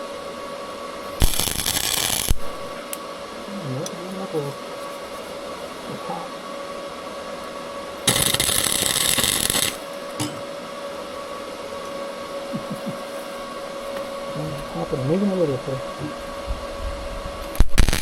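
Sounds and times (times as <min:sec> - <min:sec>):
steady background hum: 0:00.0 - 0:18.0
welding arc crackling: 0:01.1 - 0:02.8, 0:08.0 - 0:09.9, 0:17.5 - 0:18.0.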